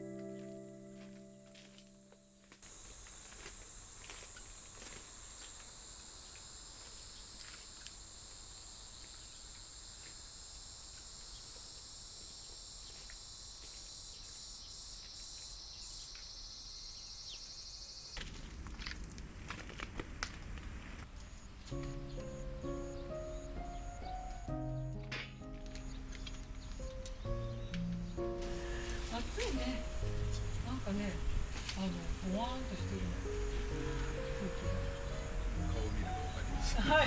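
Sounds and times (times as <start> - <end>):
high-pitched insect drone: 0.3 - 18.2, 28.4 - 37.0.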